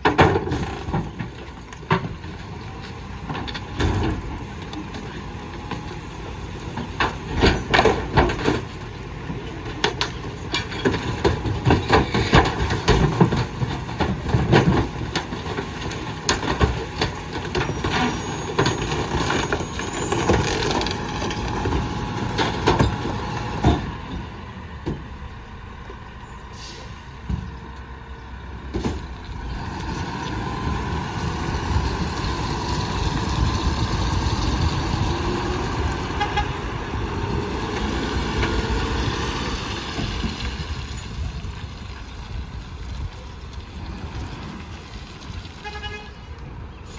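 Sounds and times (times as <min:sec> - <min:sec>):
garbage truck running: 0:00.0 - 0:46.9.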